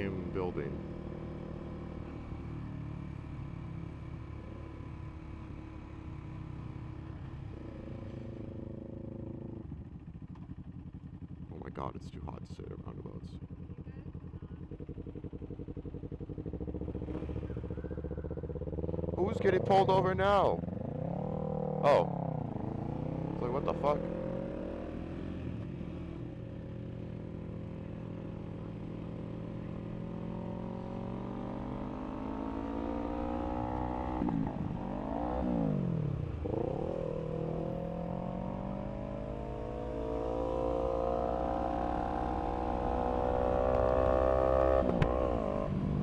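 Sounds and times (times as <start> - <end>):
motorcycle engine accelerating: 12.8 - 46.0.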